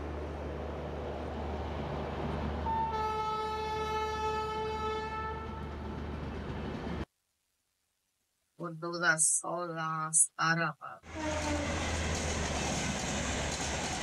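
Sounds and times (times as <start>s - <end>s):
train coaches rumbling past: 0.0s - 7.0s, 11.1s - 14.0s
two-tone train horn: 2.6s - 5.9s, 11.0s - 12.0s.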